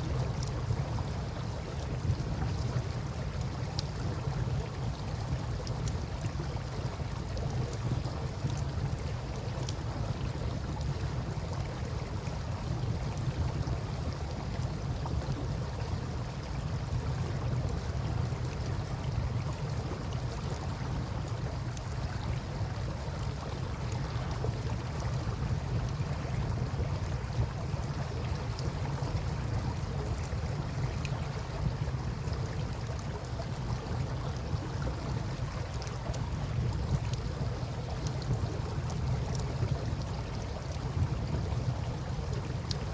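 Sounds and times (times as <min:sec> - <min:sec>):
river water flowing: 0:00.0 - 0:42.9
campfire crackling and popping: 0:00.2 - 0:02.6, 0:03.3 - 0:17.5, 0:35.3 - 0:42.9.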